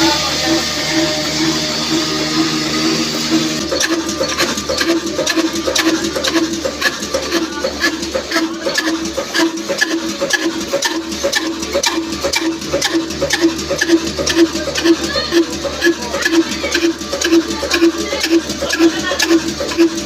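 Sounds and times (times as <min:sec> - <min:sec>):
diesel engine running: 0:00.0 - 0:20.0
sharp engine clicks: 0:00.0 - 0:20.0.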